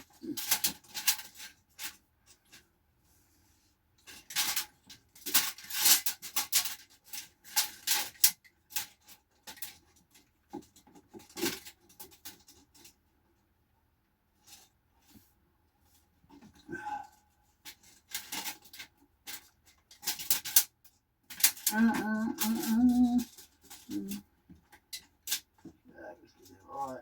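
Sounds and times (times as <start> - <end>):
objects being handled: 14.3 - 27.0.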